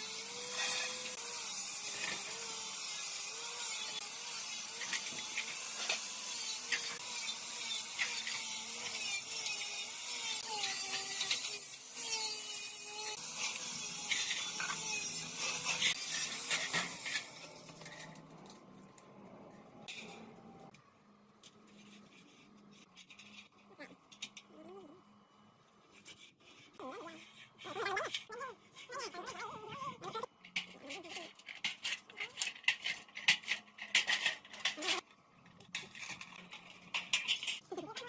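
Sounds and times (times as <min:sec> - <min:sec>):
small power tool running: 0:00.0 - 0:17.8.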